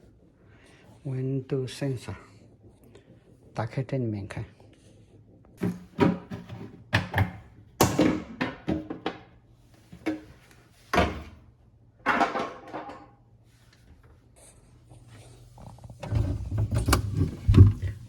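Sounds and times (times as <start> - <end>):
refrigerator door and drawers clattering: 5.6 - 9.2, 10.9 - 11.4, 12.1 - 13.1, 16.0 - 18.0.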